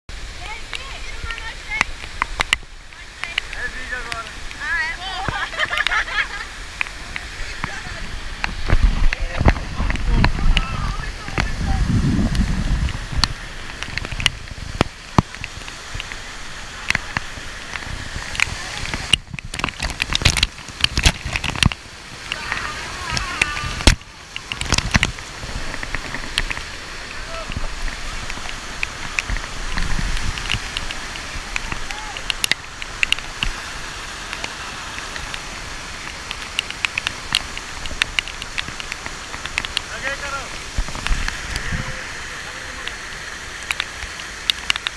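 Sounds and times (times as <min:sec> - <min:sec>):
waterfall rushing: 0:00.1 - 0:44.9
sharp clicks and knocks: 0:16.8 - 0:22.4, 0:27.5 - 0:33.6, 0:36.0 - 0:39.9.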